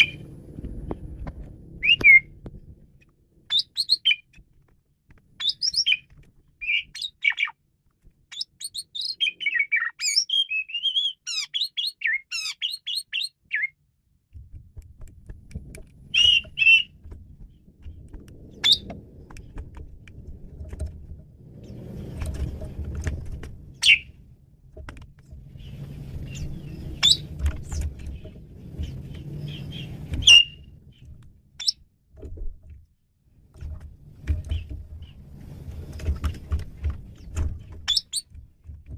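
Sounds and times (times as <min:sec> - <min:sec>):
starling singing: 0:00.0 - 0:00.2, 0:01.8 - 0:02.3, 0:03.5 - 0:04.3, 0:05.4 - 0:07.6, 0:08.3 - 0:13.8, 0:16.1 - 0:17.0, 0:18.5 - 0:18.9, 0:25.5 - 0:31.8
low rumbling background noise: 0:00.0 - 0:09.8, 0:13.8 - 0:38.9.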